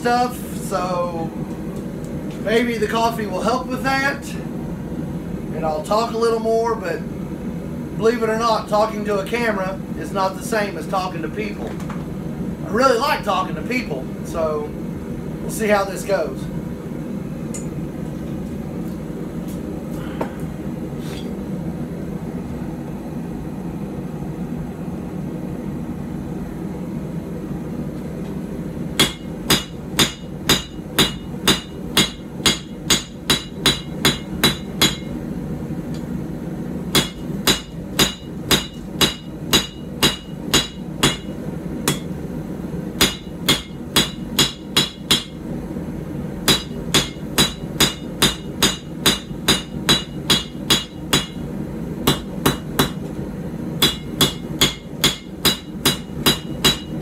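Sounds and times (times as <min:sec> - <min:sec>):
steady background hum: 0:00.0 - 0:57.0
hammer striking blade on anvil: 0:29.0 - 0:35.1, 0:36.9 - 0:42.2, 0:43.0 - 0:45.4, 0:46.5 - 0:51.4, 0:52.1 - 0:53.0, 0:53.8 - 0:57.0.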